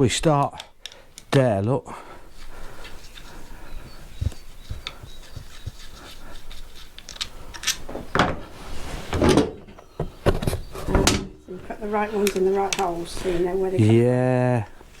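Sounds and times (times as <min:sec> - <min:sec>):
metal parts and tools clicking: 0:04.8 - 0:08.1.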